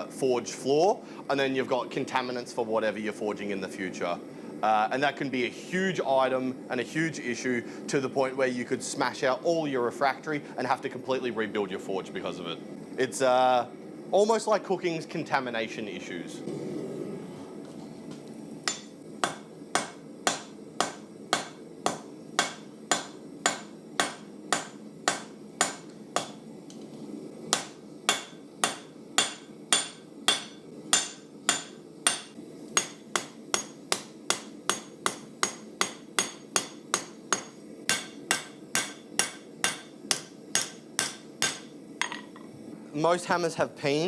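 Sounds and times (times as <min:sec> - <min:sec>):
hammer striking hot steel on anvil: 0:18.7 - 0:26.5, 0:27.5 - 0:42.3.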